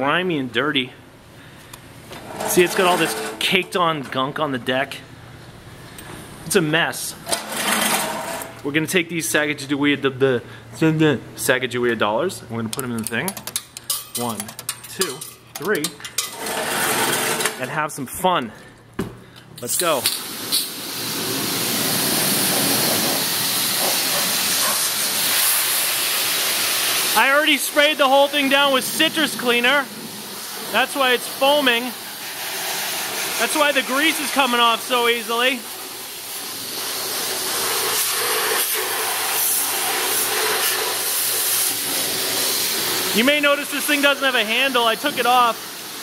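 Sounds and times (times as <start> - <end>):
pressure washer spraying water: 2.2 - 3.4, 19.6 - 46.0.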